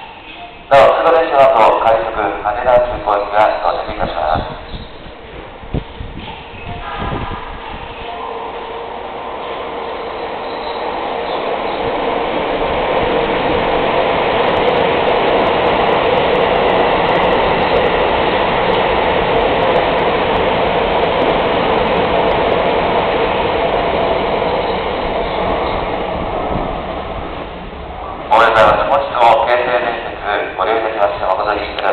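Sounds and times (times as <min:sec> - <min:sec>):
train wheels on rails: 0:02.7 - 0:31.9.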